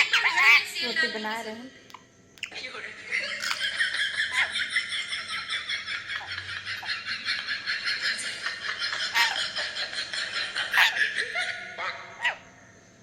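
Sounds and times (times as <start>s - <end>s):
parrot chattering: 0.0s - 1.1s, 1.9s - 2.6s, 3.4s - 4.6s, 9.0s - 9.7s, 10.6s - 12.6s.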